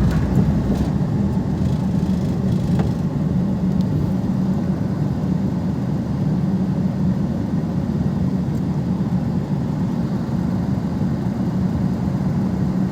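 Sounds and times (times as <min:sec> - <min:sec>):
car engine running steadily: 0:00.0 - 0:07.2.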